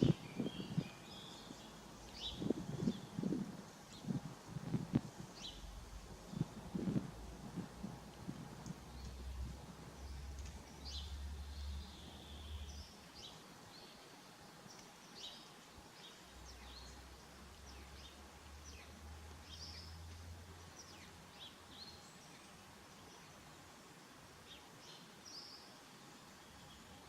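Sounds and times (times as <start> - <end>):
small birds chirping: 0.0 - 27.0
low rumble: 2.1 - 12.0.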